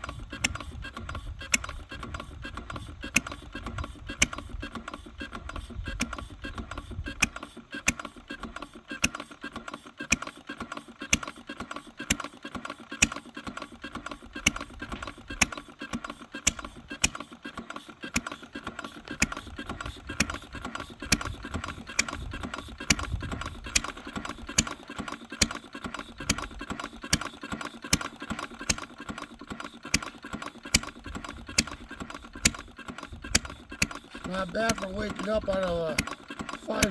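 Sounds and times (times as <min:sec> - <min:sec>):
fast light ticking: 0:00.0 - 0:08.1, 0:29.9 - 0:36.9
sharp engine click: 0:00.0 - 0:09.3, 0:12.1 - 0:18.4, 0:19.1 - 0:36.9
small engine running: 0:00.0 - 0:36.9.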